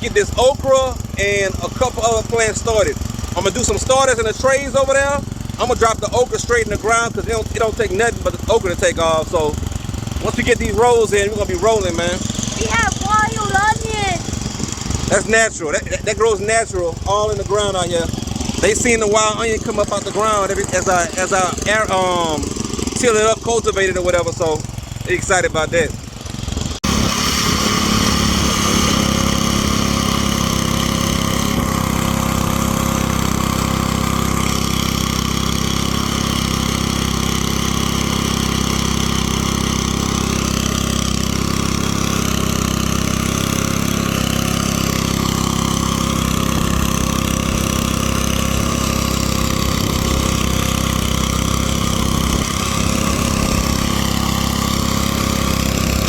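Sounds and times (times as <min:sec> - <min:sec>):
small gasoline engine running: 0:00.0 - 0:56.0.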